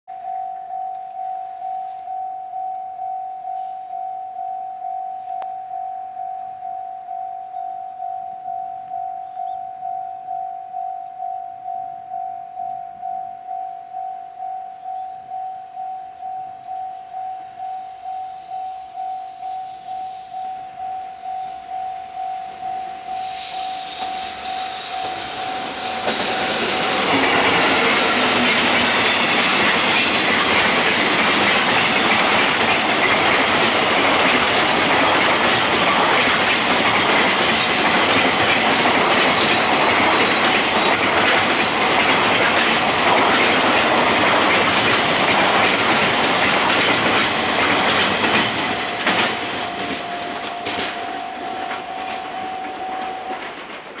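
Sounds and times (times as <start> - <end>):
steady tone: 0.1 - 29.9, 48.5 - 53.8
wheels rumbling on rail: 22.0 - 54.0
high wheel squeal: 22.9 - 30.7
clickety-clack over rail joints: 26.0 - 54.0.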